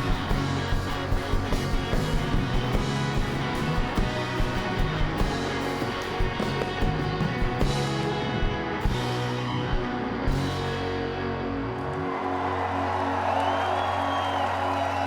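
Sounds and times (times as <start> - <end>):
drumming: 0.0 - 10.8
live rock band playing: 0.0 - 12.5
crowd cheering: 10.2 - 15.0.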